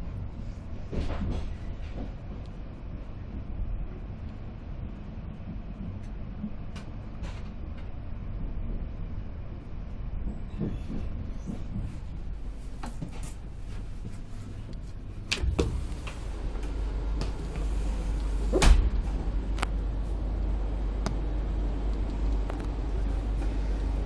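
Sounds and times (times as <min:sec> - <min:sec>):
train running gear rumble: 0:00.0 - 0:24.0.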